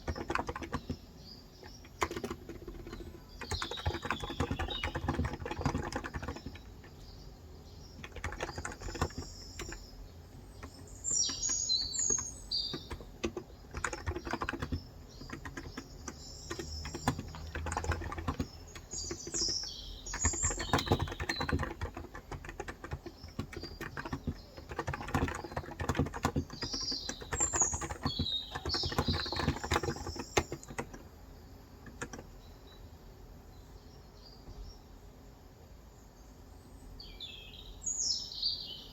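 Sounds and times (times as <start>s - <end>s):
keyboard typing: 0.0s - 7.2s, 7.8s - 31.1s, 31.8s - 32.4s
small birds chirping: 0.0s - 38.9s.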